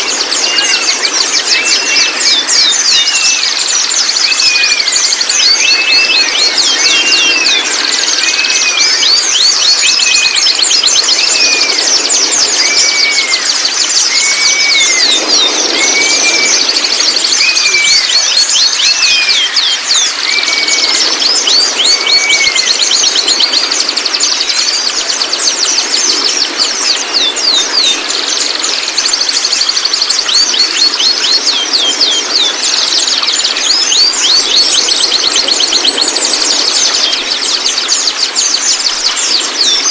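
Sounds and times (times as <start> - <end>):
bird song chatter: 0.0 - 39.9.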